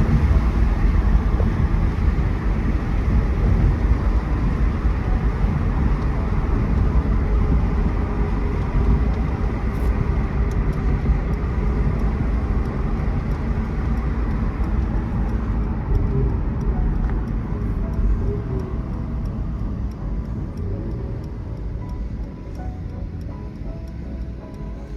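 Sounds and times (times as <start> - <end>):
car engine cruising: 0.0 - 24.9
road noise: 0.0 - 24.9.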